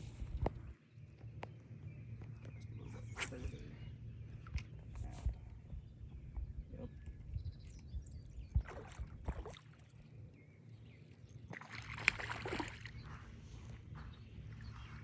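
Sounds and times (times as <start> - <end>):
wind rumble on microphone: 0.0 - 9.6, 12.0 - 15.0
fish splashing at water surface: 11.5 - 13.0.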